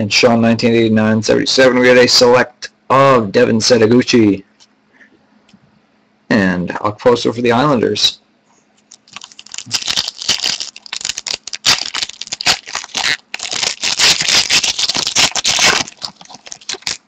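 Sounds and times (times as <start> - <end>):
wrapper crinkling and rustling: 8.9 - 17.0.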